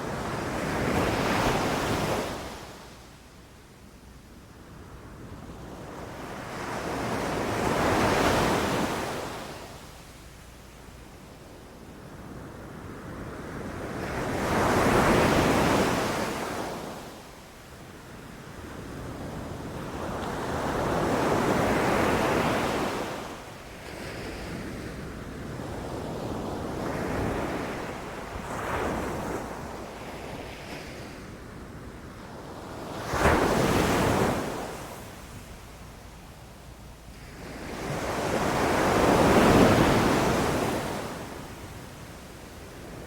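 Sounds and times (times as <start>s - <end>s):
ocean waves breaking on beach: 18.5s - 35.8s, 37.2s - 43.0s.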